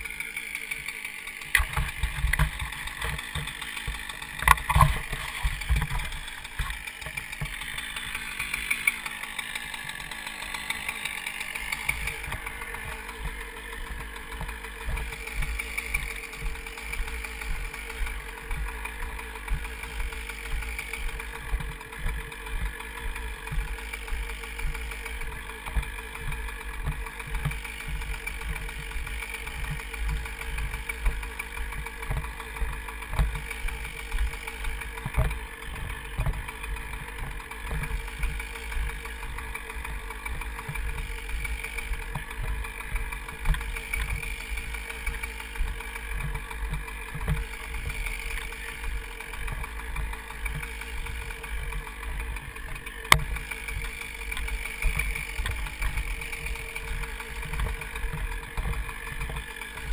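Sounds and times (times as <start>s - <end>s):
engine idling: 0.0s - 59.9s
sharp click: 1.5s - 3.1s.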